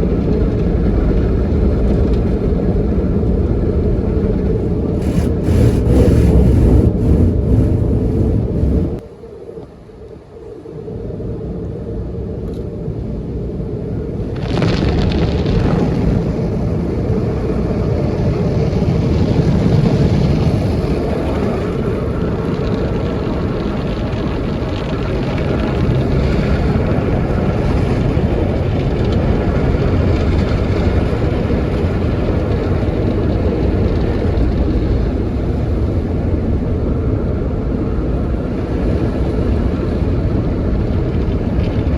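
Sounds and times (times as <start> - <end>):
car wash machinery rushing: 4.9 - 9.0.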